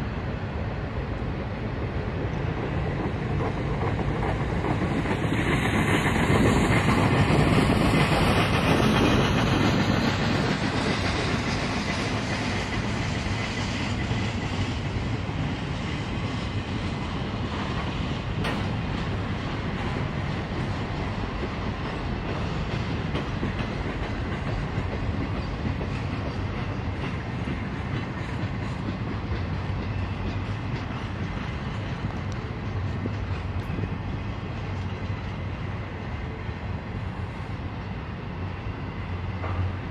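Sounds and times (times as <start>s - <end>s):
freight train wheels clacking: 0.0s - 39.9s.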